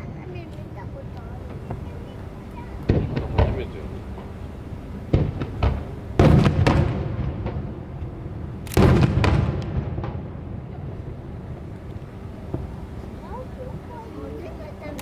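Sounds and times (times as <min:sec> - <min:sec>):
small firework pops: 0:00.5 - 0:04.4, 0:05.1 - 0:10.2
firework shells booming: 0:00.5 - 0:15.0
low rumble: 0:01.0 - 0:14.1.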